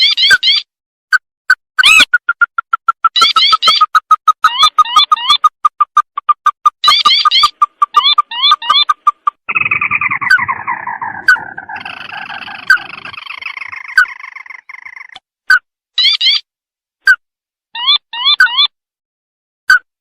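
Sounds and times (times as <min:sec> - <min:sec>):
bird chattering trill: 0:01.8 - 0:15.2, 0:16.0 - 0:16.5
sharp bird notes: 0:06.8 - 0:15.2
rising bird notes: 0:09.5 - 0:15.2.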